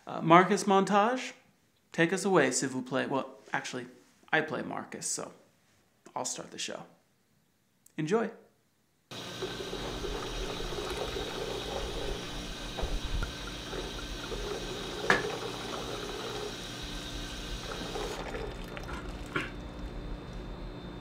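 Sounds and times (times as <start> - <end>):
tap water running into sink: 9.1 - 20.0.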